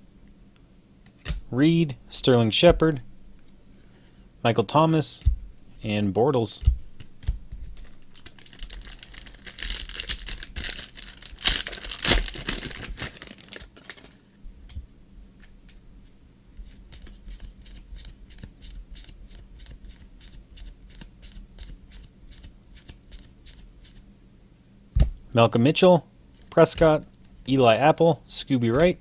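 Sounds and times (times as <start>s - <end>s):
wrapper tearing and crinkling: 8.1s - 14.2s.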